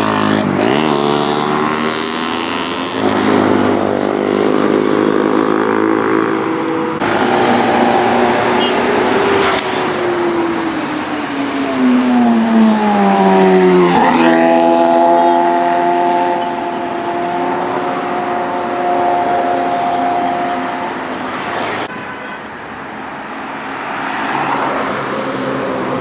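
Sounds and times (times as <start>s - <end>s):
motorbike engines running: 0.0s - 21.9s.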